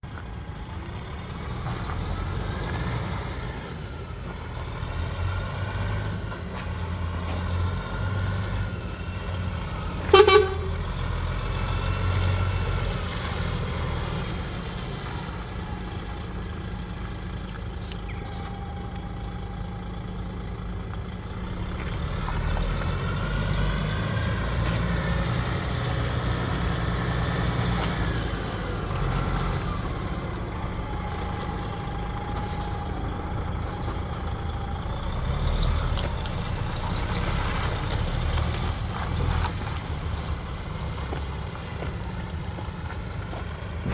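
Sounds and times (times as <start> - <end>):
truck diesel engine revving: 0.0 - 43.9
truck horn blast: 9.8 - 11.4.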